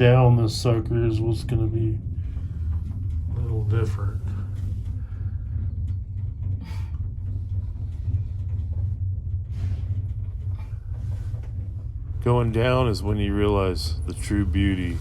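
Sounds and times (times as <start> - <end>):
gondola cabin rumble: 0.0 - 15.0.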